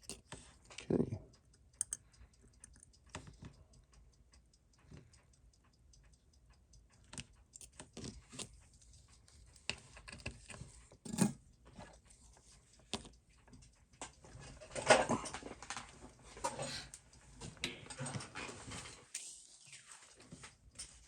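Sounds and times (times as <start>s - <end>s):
small metal tools clicking: 0.0s - 3.9s.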